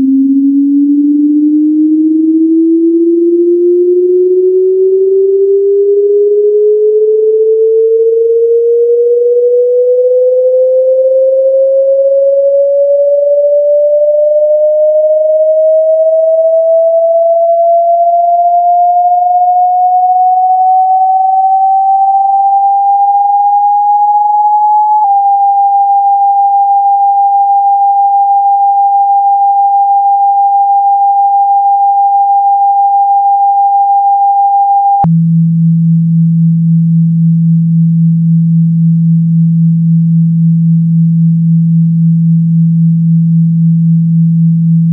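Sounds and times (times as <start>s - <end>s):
pure synthetic tone: 0.0s - 35.2s.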